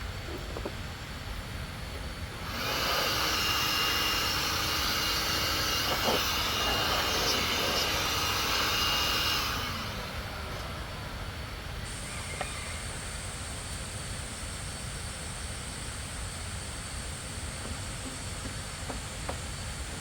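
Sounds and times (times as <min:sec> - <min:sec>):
loud hissing air rush: 0:00.9 - 0:20.0
faint high whine: 0:02.2 - 0:19.8.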